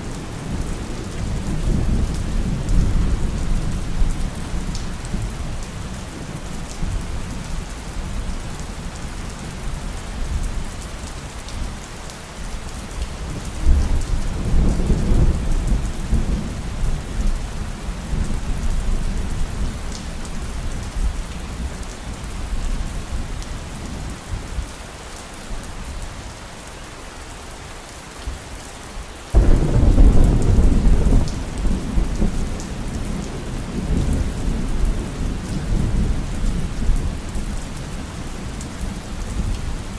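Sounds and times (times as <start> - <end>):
heavy rain: 0.0 - 39.9
thunderclap: 29.4 - 32.8
rolling thunder: 29.4 - 37.2.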